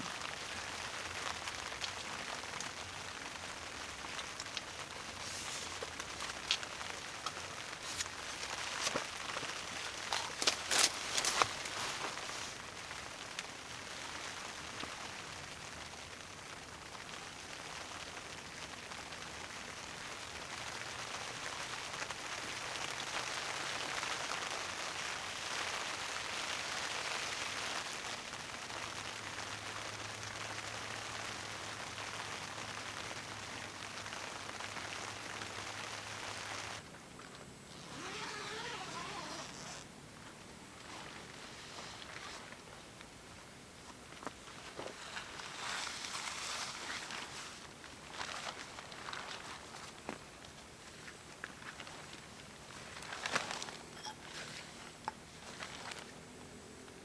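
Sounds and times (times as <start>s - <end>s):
heavy rain falling: 0.0s - 36.8s.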